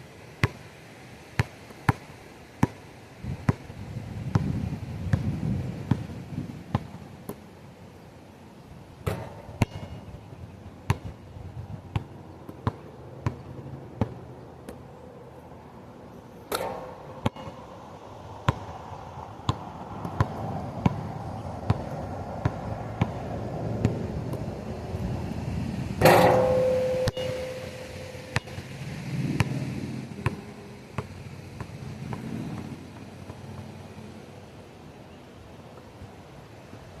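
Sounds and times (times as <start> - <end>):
basketball bouncing on hard ground: 0.4 - 0.6, 1.4 - 7.4, 9.0 - 14.2, 16.5 - 17.6, 18.5 - 18.8, 19.5 - 24.5, 26.0 - 33.7
ball clanging off metal rim: 16.5 - 17.6, 26.0 - 28.8.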